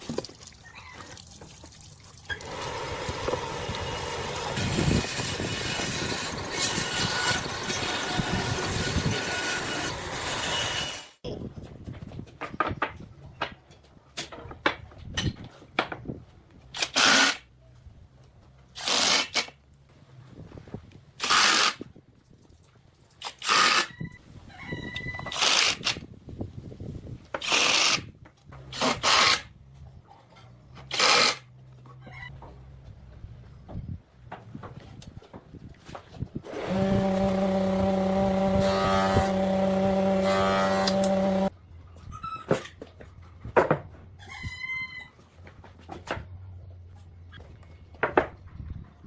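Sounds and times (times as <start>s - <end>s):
woodworking machine running: 2.4s - 11.1s, 36.5s - 41.5s.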